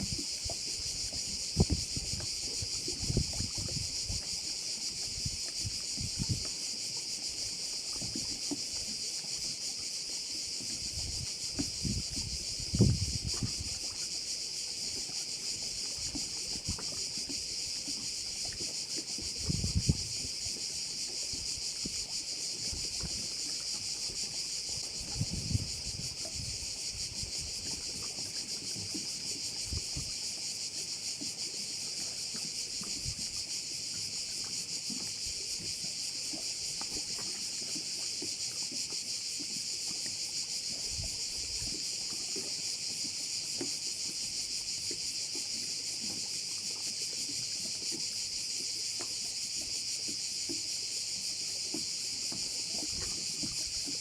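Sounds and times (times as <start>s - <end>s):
wind rumble on microphone: 0.0s - 6.5s, 10.8s - 14.0s, 19.2s - 20.7s, 24.8s - 28.2s, 29.6s - 30.2s, 32.9s - 33.4s, 40.8s - 41.8s
cicadas buzzing: 0.0s - 54.0s.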